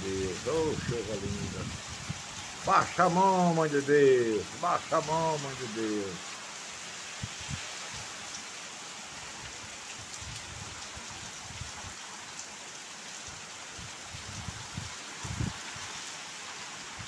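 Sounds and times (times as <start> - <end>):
heavy rain pouring: 0.0 - 17.0
wind buffeting microphone: 0.2 - 2.4, 13.8 - 15.7.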